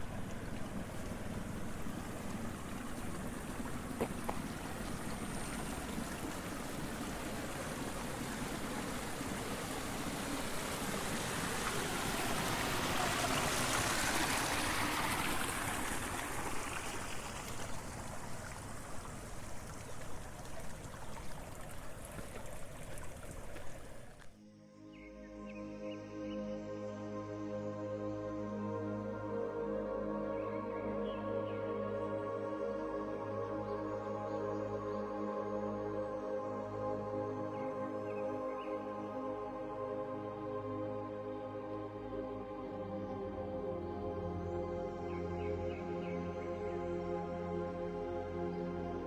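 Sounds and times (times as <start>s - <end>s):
water rushing and trickling: 0.0s - 24.4s
gentle ambient music: 0.0s - 49.0s.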